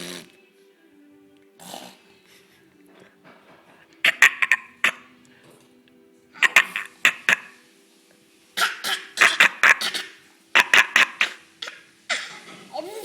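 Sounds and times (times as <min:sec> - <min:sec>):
breathy vocal noises: 0:01.6 - 0:05.7.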